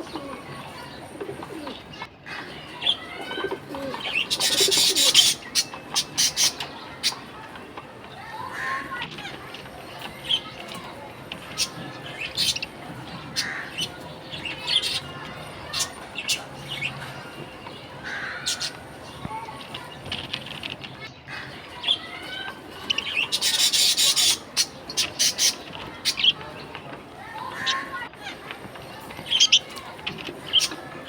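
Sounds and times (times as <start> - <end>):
budgerigars chirping: 4.0 - 7.2, 11.6 - 17.0, 22.9 - 26.4.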